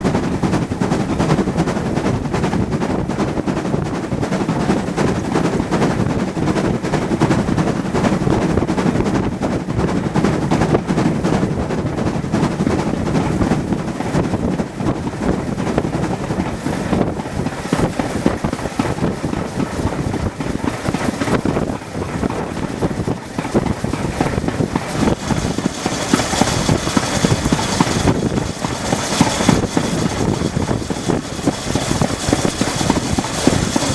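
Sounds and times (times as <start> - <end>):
train rumbling and clattering: 0.0 - 33.9
hiss: 23.4 - 33.9.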